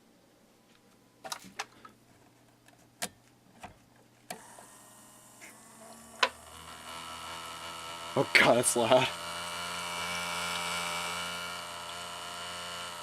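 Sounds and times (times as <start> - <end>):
motor buzzing hum: 4.3 - 13.0.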